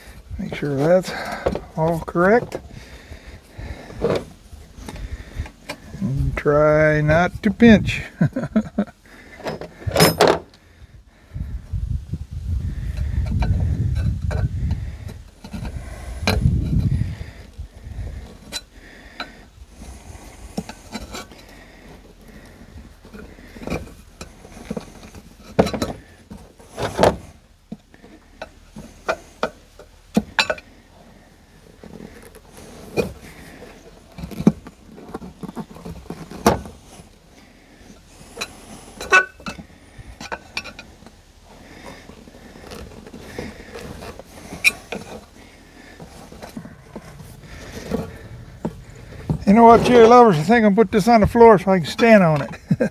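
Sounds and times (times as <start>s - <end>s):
hand tools clicking and knocking: 0.5s - 2.8s, 8.3s - 10.6s, 18.1s - 30.7s, 37.4s - 52.9s.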